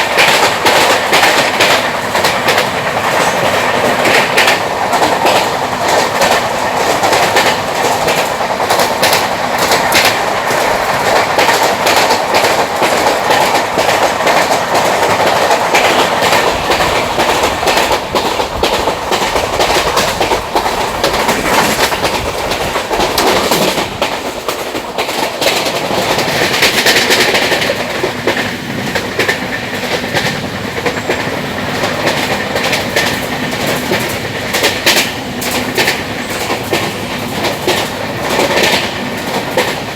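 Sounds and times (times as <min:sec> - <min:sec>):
train rumble: 0:00.0 - 0:39.9
train wheels clattering on rail joints: 0:00.0 - 0:39.9.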